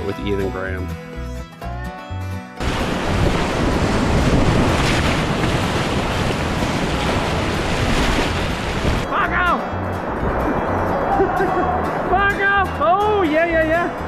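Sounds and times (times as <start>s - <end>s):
wind buffeting microphone: 2.6s - 9.1s, 9.8s - 12.1s
whitewater rushing: 2.6s - 14.0s.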